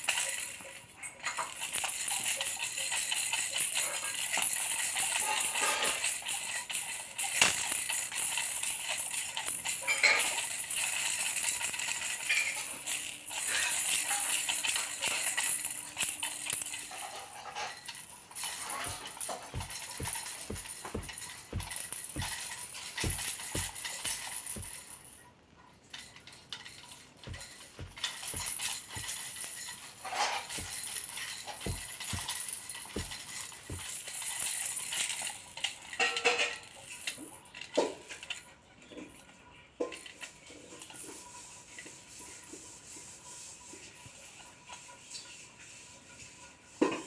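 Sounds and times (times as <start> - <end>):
small hard objects clinking: 17.8 - 25.2, 26.5 - 35.0
soft thuds: 18.7 - 24.8, 27.3 - 29.8, 30.5 - 34.0.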